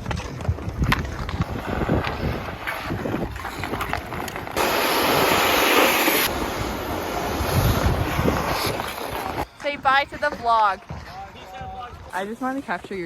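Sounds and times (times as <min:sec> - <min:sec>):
wind buffeting microphone: 0:00.0 - 0:05.4, 0:06.3 - 0:09.5.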